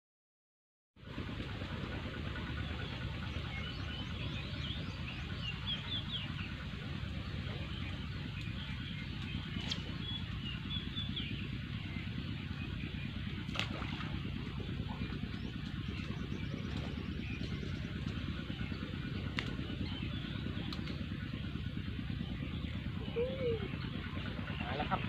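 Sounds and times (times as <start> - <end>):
steady low rumble: 1.0 - 25.0
small birds chirping: 2.5 - 25.0.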